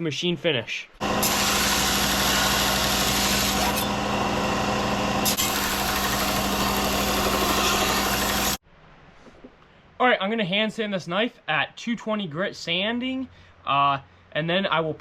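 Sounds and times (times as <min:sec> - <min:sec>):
power sander motor hum: 0:01.0 - 0:08.6.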